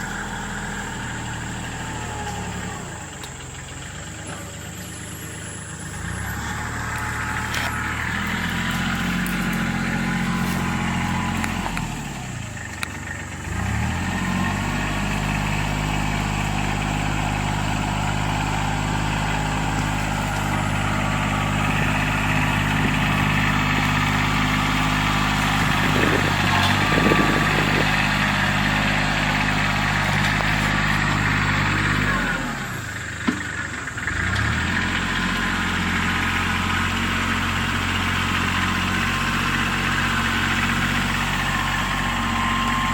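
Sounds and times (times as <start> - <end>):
brush cutter engine running: 5.9 - 42.9.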